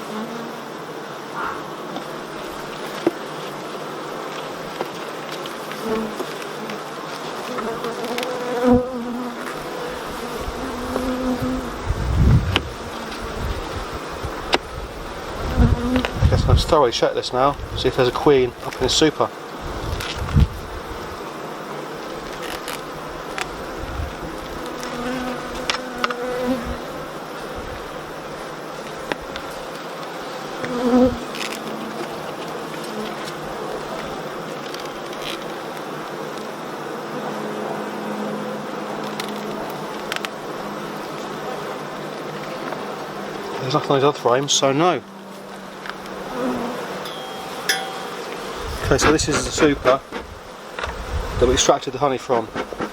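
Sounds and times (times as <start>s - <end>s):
single bee humming close: 0.0s - 16.6s, 17.6s - 43.6s, 45.0s - 51.5s
honeybees buzzing: 0.0s - 52.9s.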